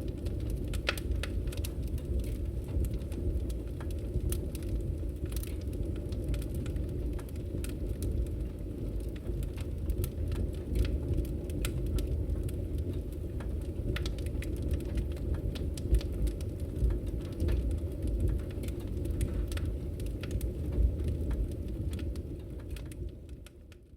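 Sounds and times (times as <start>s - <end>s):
fire rumbling in wood stove: 0.0s - 23.9s
logs crackling and popping: 0.0s - 23.9s.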